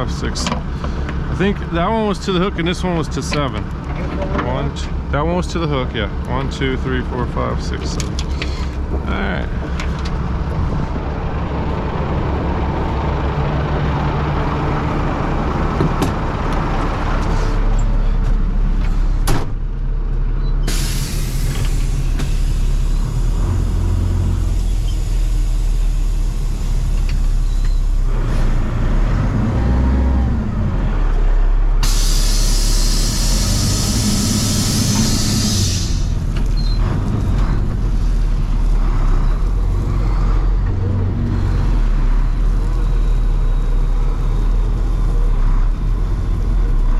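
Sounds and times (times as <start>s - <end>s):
truck engine running: 0.0s - 46.9s
air hissing: 20.6s - 27.5s, 31.8s - 36.4s.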